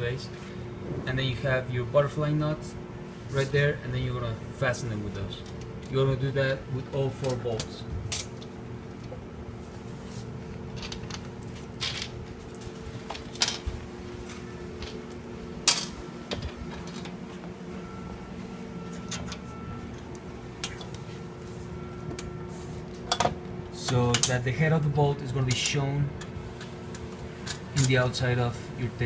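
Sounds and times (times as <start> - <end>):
low hum: 0.0 - 25.5.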